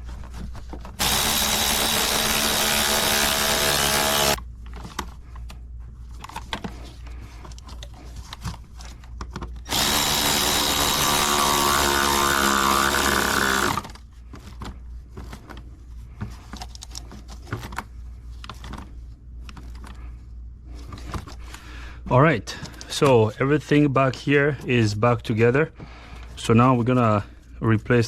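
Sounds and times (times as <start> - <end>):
power drill running: 1.0 - 4.4, 9.7 - 13.9.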